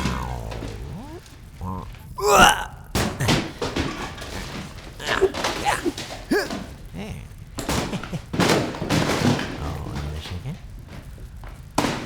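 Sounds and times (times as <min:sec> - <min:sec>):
cartoon thumps: 0:00.0 - 0:03.5
voice-like grunts: 0:00.0 - 0:08.6, 0:09.6 - 0:10.6.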